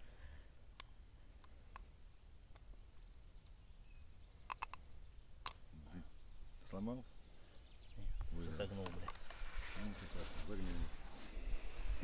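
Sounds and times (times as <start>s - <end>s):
faint sharp clicks: 0.7s - 1.9s, 4.4s - 5.6s.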